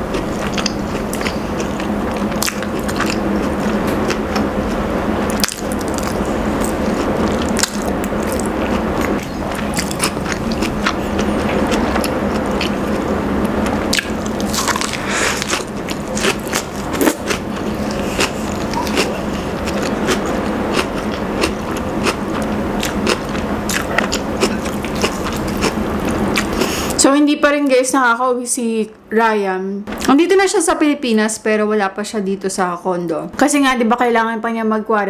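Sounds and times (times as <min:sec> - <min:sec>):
crunchy chewing: 0:00.0 - 0:27.0.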